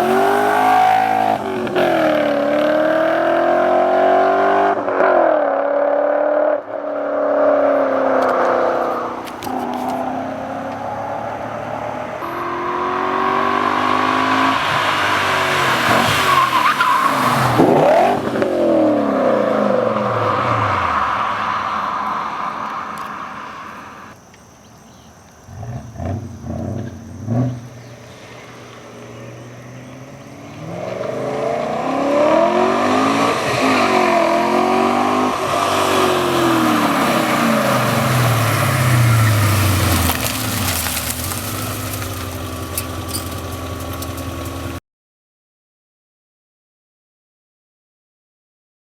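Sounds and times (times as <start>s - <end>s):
car exhaust accelerating hard: 0.0s - 24.2s, 25.5s - 44.8s
engine revving blips: 25.5s - 44.8s.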